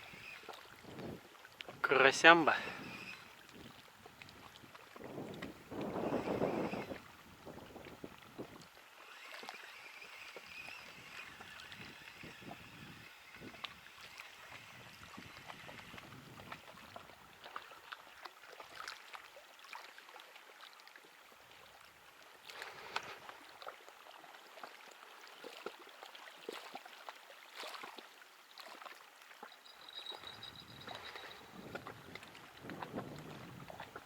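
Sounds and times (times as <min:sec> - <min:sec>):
small waves lapping: 0:00.0 - 0:34.0.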